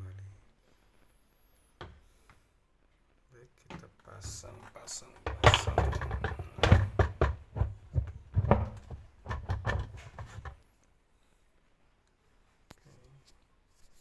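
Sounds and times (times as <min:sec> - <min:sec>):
parts knocking and clunking: 0:03.6 - 0:10.6.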